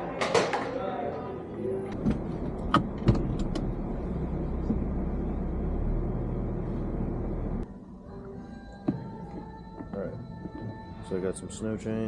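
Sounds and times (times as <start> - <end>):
car engine and road noise: 1.9 - 7.7.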